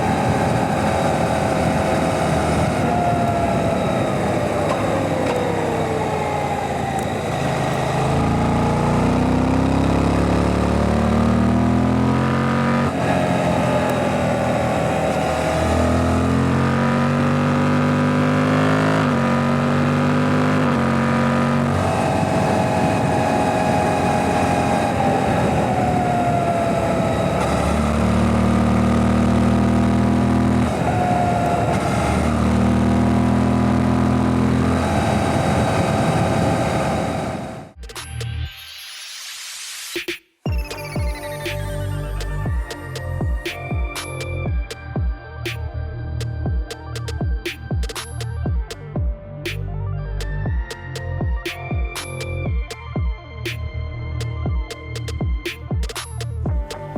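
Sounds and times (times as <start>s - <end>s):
wind rush: 0.0s - 7.0s, 21.7s - 27.9s, 34.7s - 37.8s
motorcycle engine revving: 0.0s - 37.8s.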